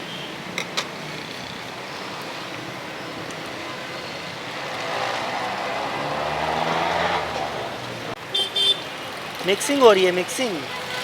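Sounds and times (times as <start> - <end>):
street traffic noise: 0.0 - 11.0
motor vehicle passing: 4.2 - 8.2.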